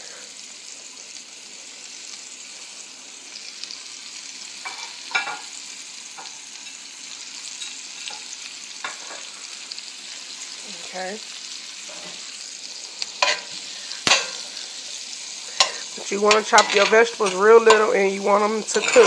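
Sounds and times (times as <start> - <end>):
vegetables sizzling in butter: 0.0 - 19.0
scrapes and clinks against pan: 15.6 - 17.9, 18.7 - 19.0.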